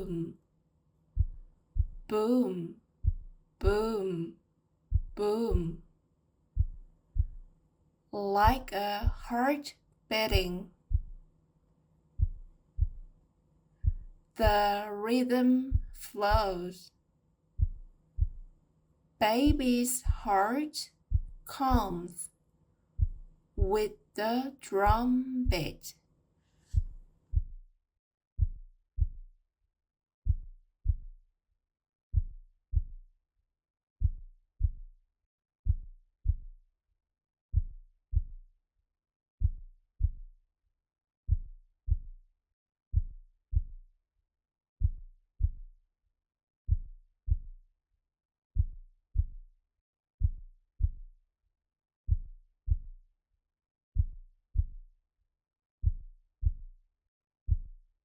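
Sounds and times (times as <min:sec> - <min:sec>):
heartbeat-like low thumps: 0:01.2 - 0:04.3, 0:04.9 - 0:05.8, 0:06.6 - 0:07.5, 0:08.4 - 0:09.4, 0:10.2 - 0:11.2, 0:12.2 - 0:13.1, 0:13.8 - 0:14.8, 0:15.7 - 0:16.7, 0:17.6 - 0:18.6, 0:19.4 - 0:20.5, 0:21.1 - 0:22.2, 0:23.0 - 0:24.0, 0:24.8 - 0:25.7, 0:26.7 - 0:27.6, 0:34.0 - 0:34.8, 0:39.4 - 0:40.2.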